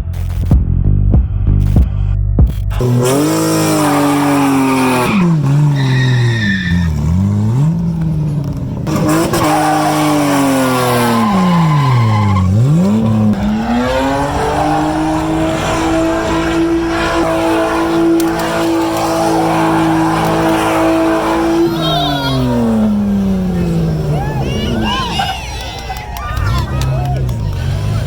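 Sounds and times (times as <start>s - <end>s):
car engine revving: 1.4s - 28.0s.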